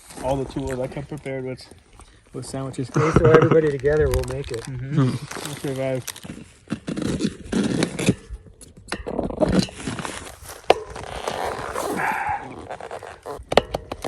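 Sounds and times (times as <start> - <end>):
scraping and rustling: 3.2 - 8.2, 9.4 - 13.5.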